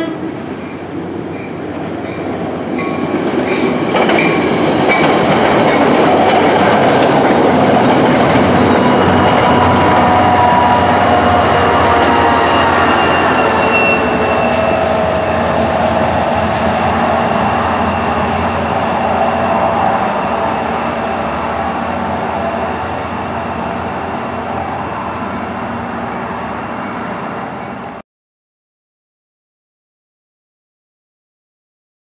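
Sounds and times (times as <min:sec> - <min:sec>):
train rumbling on rails: 0:00.0 - 0:28.0
wheel squeal: 0:12.0 - 0:21.1.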